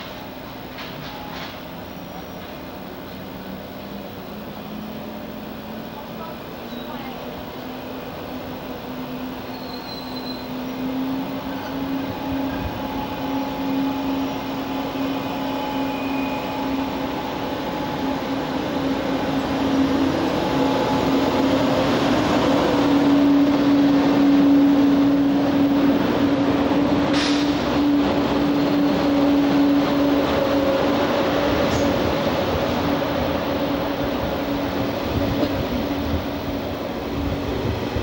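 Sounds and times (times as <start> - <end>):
rolling train wheels: 0.0 - 38.0
wheel squeal: 9.4 - 10.8.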